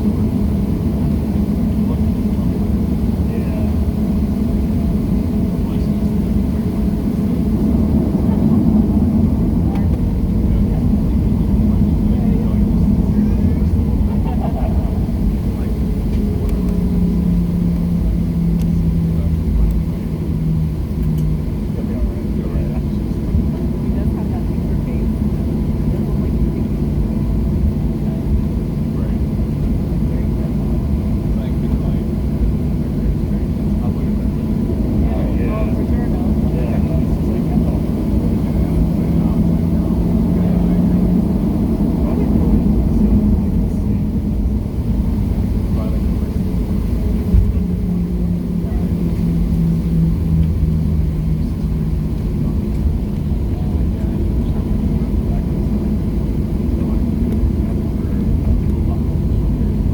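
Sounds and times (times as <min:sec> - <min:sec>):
faint steady whine: 0:00.0 - 0:59.9
jet engines idling: 0:00.0 - 0:59.9
low hum: 0:00.0 - 0:59.9.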